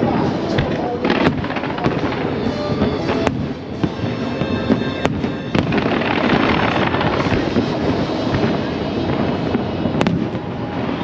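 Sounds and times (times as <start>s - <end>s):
fireworks bursting: 0.0s - 11.0s
fireworks crackle and rumble: 0.0s - 11.0s
sharp fireworks bangs: 0.0s - 11.0s.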